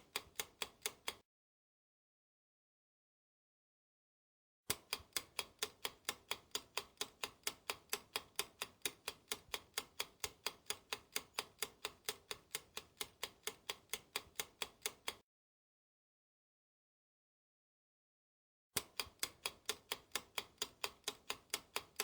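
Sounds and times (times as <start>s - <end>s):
clock ticking: 0.0s - 1.2s, 4.7s - 15.2s, 18.8s - 22.0s.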